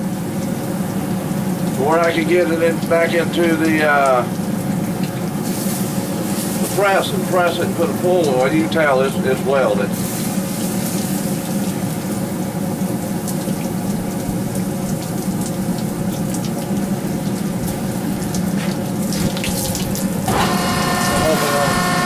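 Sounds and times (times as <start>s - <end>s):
low hum: 16.7s - 22.0s
machinery hissing roar: 20.2s - 22.0s.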